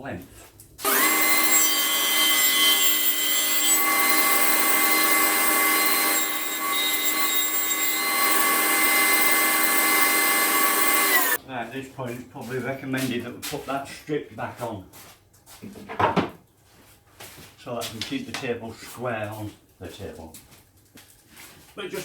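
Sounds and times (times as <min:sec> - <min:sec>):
power saw cutting wood: 0:00.8 - 0:11.4.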